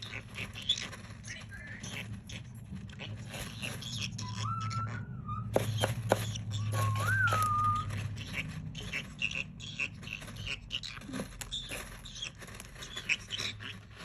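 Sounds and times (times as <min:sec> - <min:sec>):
parrot chirps and clicks: 0:00.0 - 0:13.8
parrot whistled note: 0:04.2 - 0:05.6.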